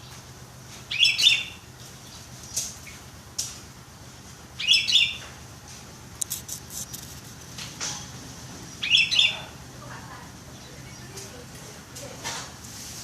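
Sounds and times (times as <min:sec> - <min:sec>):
bird chirping song: 0:00.9 - 0:03.0, 0:04.6 - 0:05.3, 0:08.7 - 0:09.5.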